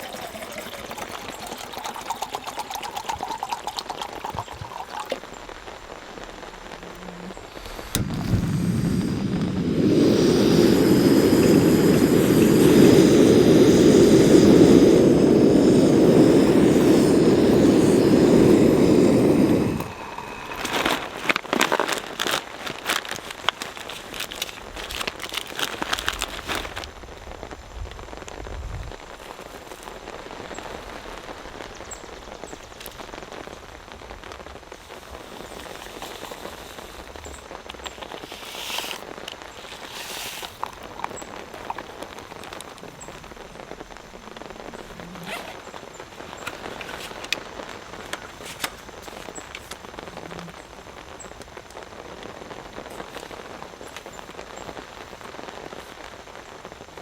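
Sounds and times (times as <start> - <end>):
raindrops ticking on surfaces: 0.0 - 8.0, 20.5 - 57.0
steady rain falling: 3.4 - 57.0.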